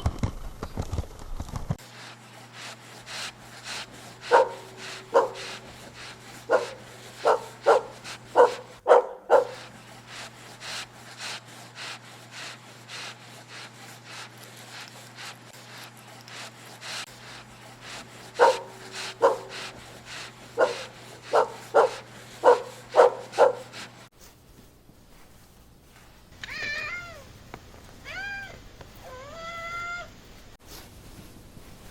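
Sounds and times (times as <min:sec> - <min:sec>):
steady low hum: 0:01.8 - 0:26.4
dog barking: 0:04.2 - 0:05.6, 0:06.4 - 0:09.7, 0:18.3 - 0:19.8, 0:20.5 - 0:23.9.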